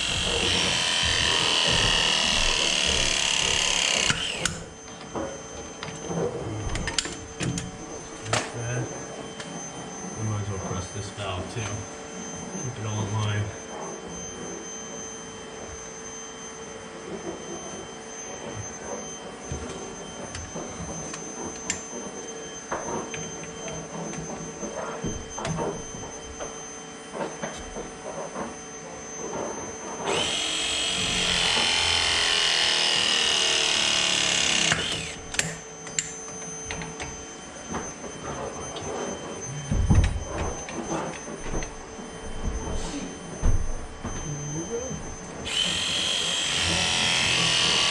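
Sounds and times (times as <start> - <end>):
crimping tool running: 0.0 - 4.8, 30.0 - 35.7, 45.4 - 47.9.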